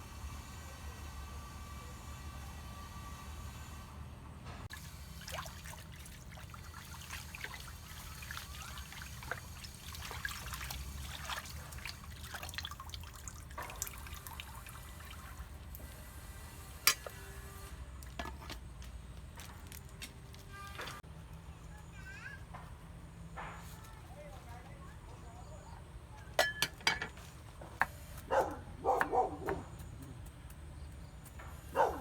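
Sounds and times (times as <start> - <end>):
water trickling and dripping: 4.7 - 16.0.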